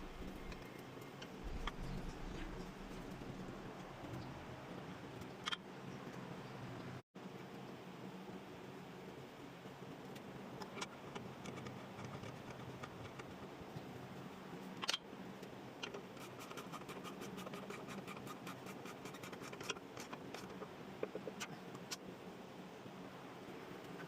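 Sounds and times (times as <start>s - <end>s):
steady low hum: 0.0s - 5.2s.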